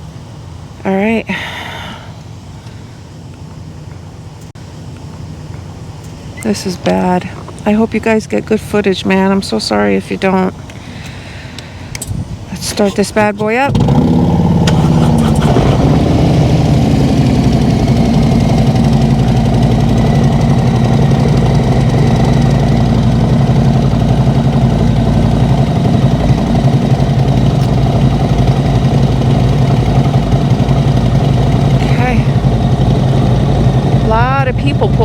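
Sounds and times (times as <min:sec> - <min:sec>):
motorcycle engine idling: 0:13.7 - 0:35.0.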